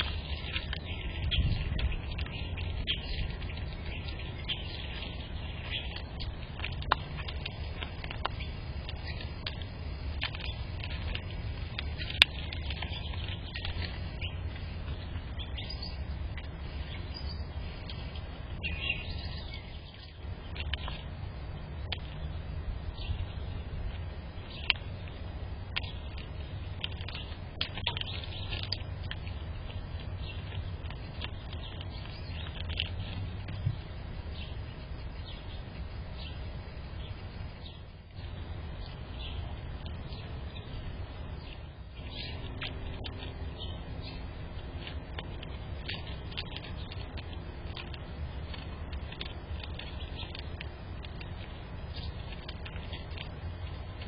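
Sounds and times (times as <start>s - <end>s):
low rumble: 0.0s - 54.0s
small birds chirping: 0.0s - 54.0s
steady low background hum: 0.0s - 54.0s
high bird chirps: 11.8s - 18.0s, 18.6s - 20.7s.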